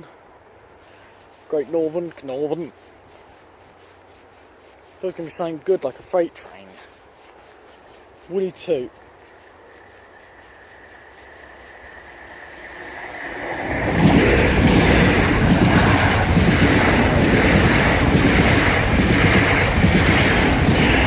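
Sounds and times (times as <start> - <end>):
train passing at speed: 9.6 - 21.0.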